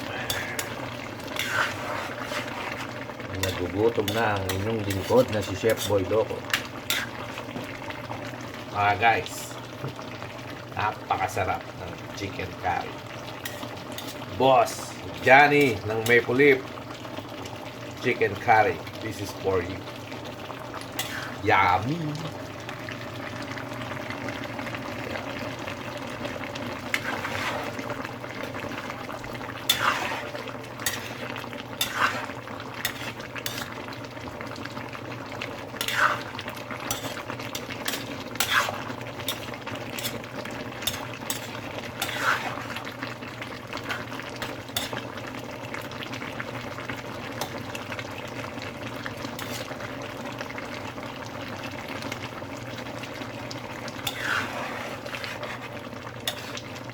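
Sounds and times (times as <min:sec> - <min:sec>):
food simmering: 0:00.0 - 0:56.9
spoon scraping cooking pot: 0:00.1 - 0:07.7, 0:13.4 - 0:14.3, 0:20.9 - 0:21.4, 0:26.8 - 0:29.0, 0:29.6 - 0:33.9, 0:35.8 - 0:42.9, 0:43.7 - 0:45.2, 0:49.3 - 0:49.8, 0:54.0 - 0:56.9.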